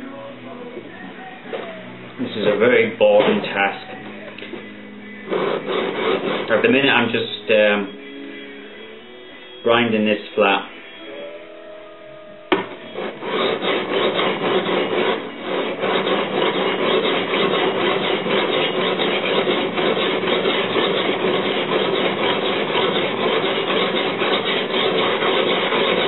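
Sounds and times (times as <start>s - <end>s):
blade scraping on abrasive: 1.6s - 11.2s, 12.4s - 26.0s
knock: 12.5s - 12.8s.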